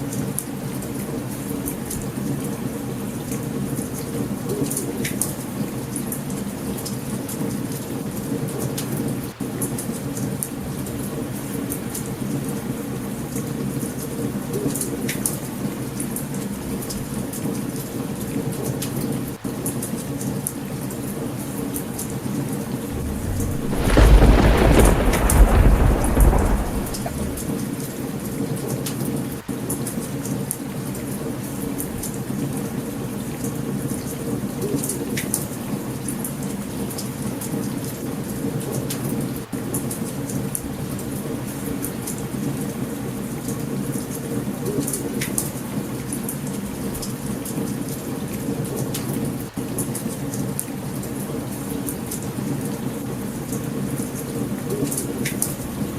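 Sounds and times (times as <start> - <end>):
heavy rain: 22.7 - 27.9
low rumble of thunder: 22.8 - 27.7
campfire crackling and popping: 22.9 - 27.5.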